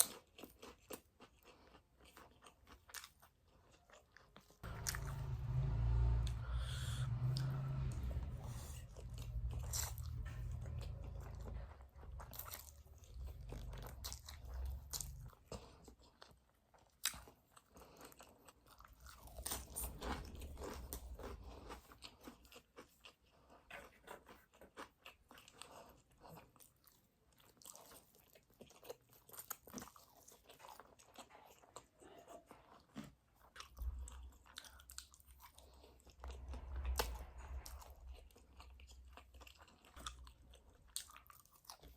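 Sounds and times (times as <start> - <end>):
chewing noodles: 0.0 - 41.9
low rumble: 4.6 - 15.5, 19.0 - 22.0, 35.5 - 40.8.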